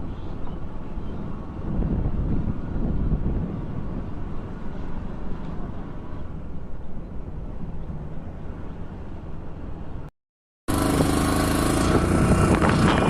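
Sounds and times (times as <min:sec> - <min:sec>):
wind on microphone: 0:00.0 - 0:08.7, 0:10.7 - 0:13.0
motorcycle engine rumble: 0:10.7 - 0:13.0.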